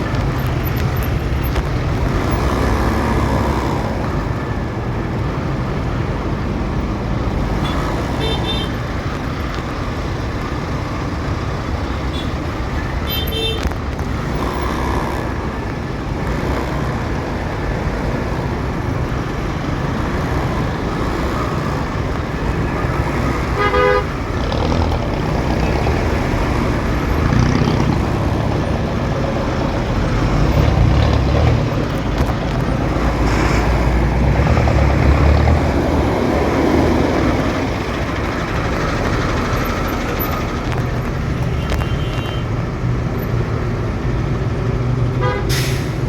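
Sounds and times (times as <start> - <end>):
road and traffic rumble: 0.0 - 46.0
vehicle horn honking: 7.6 - 8.8, 23.6 - 24.2, 45.2 - 45.6.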